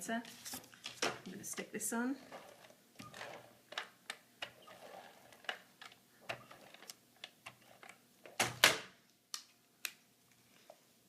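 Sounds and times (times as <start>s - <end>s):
paper rustling: 0.2s - 1.2s.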